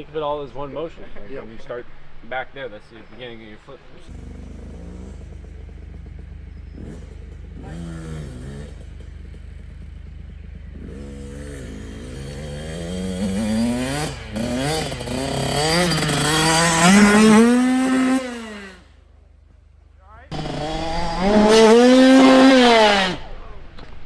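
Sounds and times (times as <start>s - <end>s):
dirt bike engine revving: 0.0s - 19.1s, 20.1s - 24.0s.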